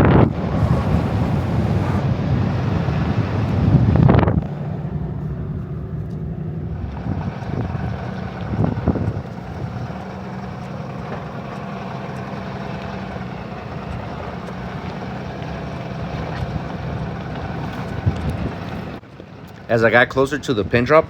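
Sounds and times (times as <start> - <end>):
truck jolting knocks: 0.0 - 4.2
truck diesel engine running: 0.0 - 19.0.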